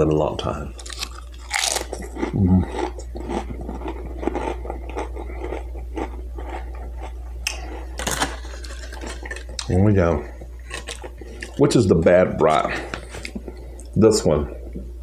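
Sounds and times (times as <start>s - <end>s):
crisp chip crunching: 0.7s - 9.9s, 10.6s - 11.7s
person humming: 2.3s - 2.7s.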